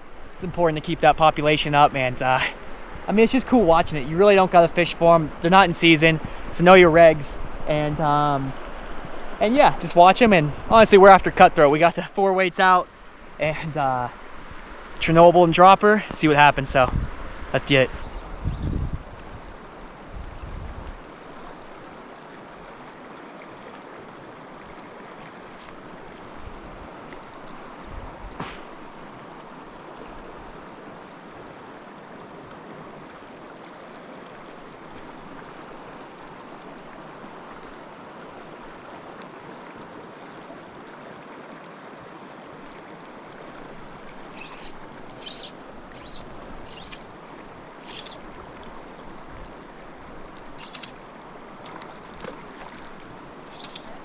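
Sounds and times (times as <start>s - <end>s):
stream rushing: 0.0s - 54.0s
sharp clicks: 50.6s - 50.9s.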